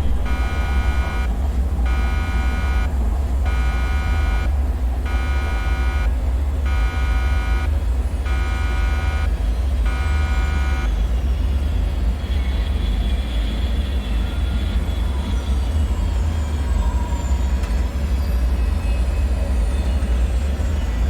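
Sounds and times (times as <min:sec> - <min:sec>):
faint high tones: 0:00.0 - 0:10.9
buzzer-like alarm tone: 0:00.0 - 0:11.0
deep droning rumble: 0:00.0 - 0:12.2.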